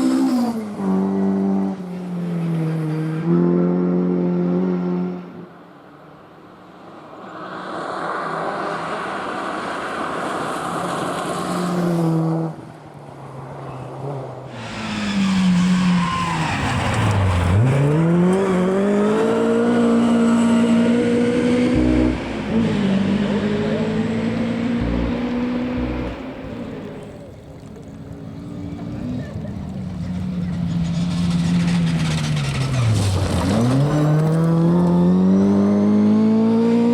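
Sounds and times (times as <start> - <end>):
rally car engines revving: 13.7 - 27.3, 28.2 - 36.9.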